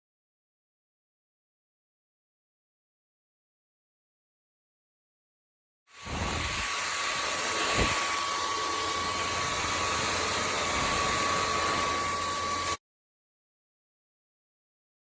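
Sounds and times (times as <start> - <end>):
vacuum cleaner motor whining: 5.9 - 12.8.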